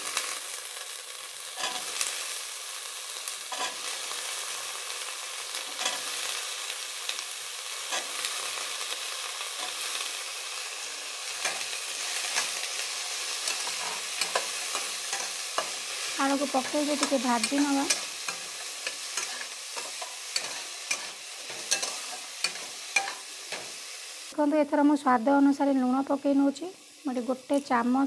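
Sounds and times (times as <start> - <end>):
potatoes sizzling in hot oil: 0.0 - 28.0
steel spatula scraping pan: 11.4 - 23.7.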